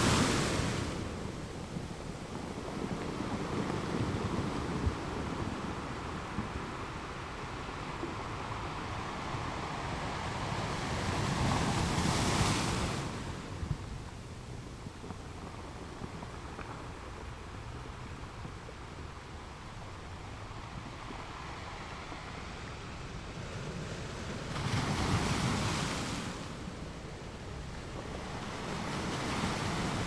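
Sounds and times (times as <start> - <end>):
ocean waves on shore: 0.0 - 14.0, 18.8 - 30.0.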